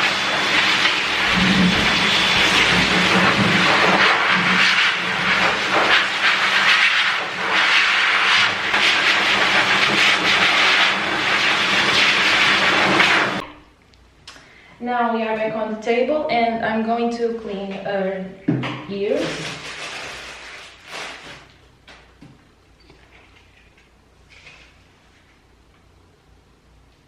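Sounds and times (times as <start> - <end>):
blow dryer blowing air: 0.0 - 13.4.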